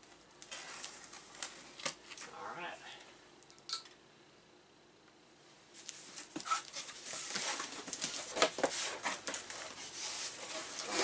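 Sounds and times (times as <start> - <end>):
packaging rustling and crinkling: 0.0 - 2.3, 5.8 - 11.0.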